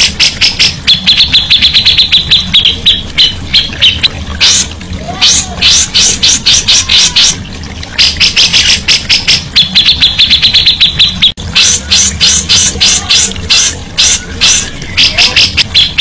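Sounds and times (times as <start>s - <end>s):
bulbul singing chattering song: 0.0s - 16.0s.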